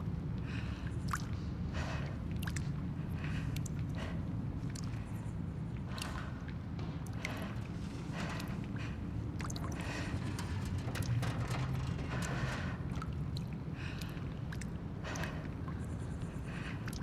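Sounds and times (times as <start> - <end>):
low rumble: 9.6 - 13.5.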